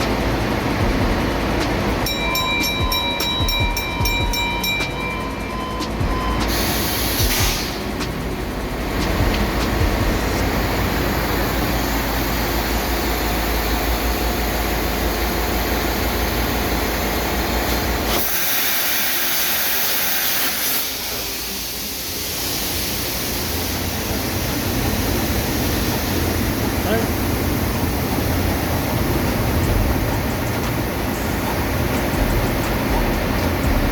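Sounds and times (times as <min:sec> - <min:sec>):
ship diesel engine rumbling: 0:00.0 - 0:20.0, 0:20.8 - 0:33.9
loud hiss: 0:06.4 - 0:08.0, 0:17.7 - 0:28.2.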